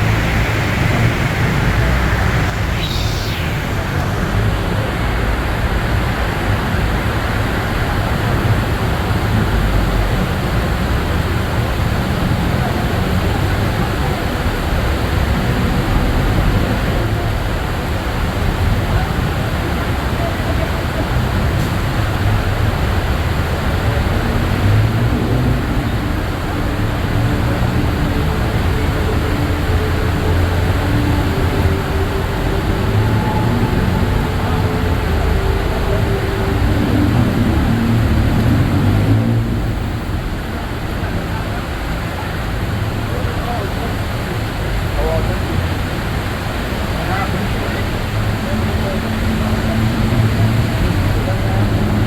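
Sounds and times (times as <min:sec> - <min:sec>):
rain hissing on road: 0:00.0 - 0:03.2
brief swish: 0:00.0 - 0:05.2
road traffic rumbling: 0:00.0 - 0:05.8, 0:23.4 - 0:43.1.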